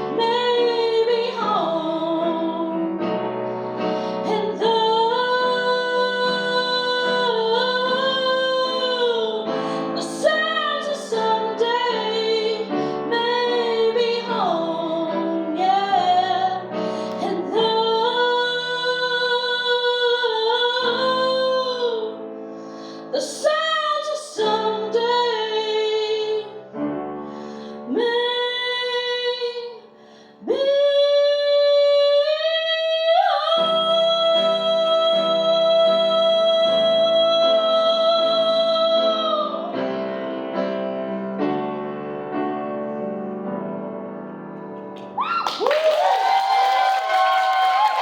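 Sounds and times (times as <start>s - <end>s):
woman singing: 0.0s - 3.4s, 4.0s - 22.2s, 23.0s - 26.8s, 27.7s - 39.9s
piano accompaniment: 0.0s - 48.0s.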